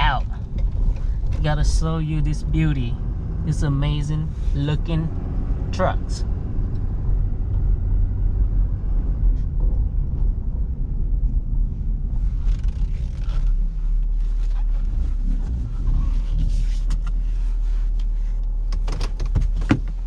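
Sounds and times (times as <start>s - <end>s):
diesel engine rumbling: 0.0s - 20.0s
rustling: 12.1s - 20.0s.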